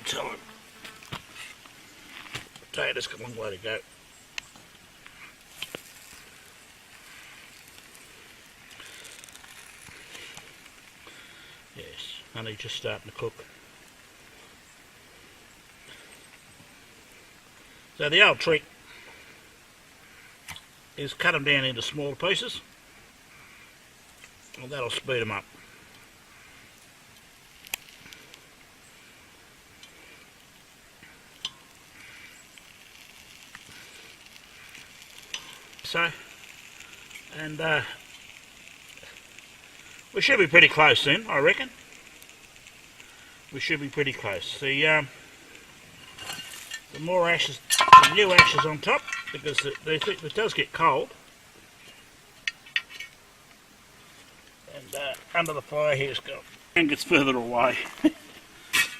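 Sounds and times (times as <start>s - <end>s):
roast sizzling over coals: 0.0s - 58.9s
knife clinking on metal pot: 47.7s - 49.8s.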